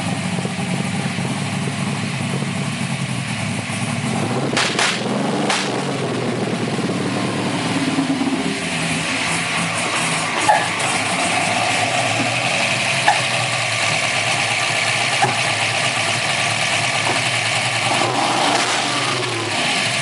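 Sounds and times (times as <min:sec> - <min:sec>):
car engine running: 0:00.0 - 0:20.0
engine misfire cracks: 0:04.0 - 0:06.3, 0:08.0 - 0:20.0.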